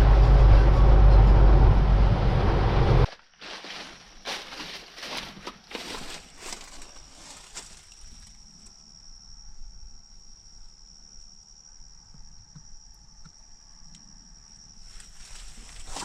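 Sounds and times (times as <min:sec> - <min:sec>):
faint crunch: 0:03.1 - 0:08.8, 0:14.8 - 0:16.0.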